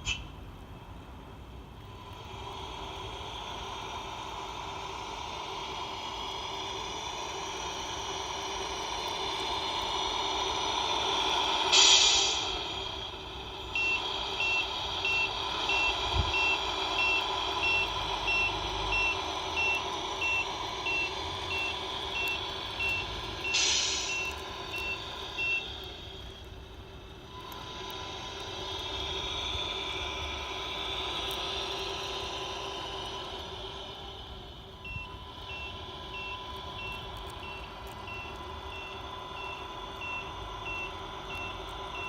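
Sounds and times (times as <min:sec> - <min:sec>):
air brake hiss: 0:00.0 - 0:00.4, 0:02.0 - 0:18.9, 0:20.5 - 0:25.4
truck engine running: 0:00.0 - 0:42.0.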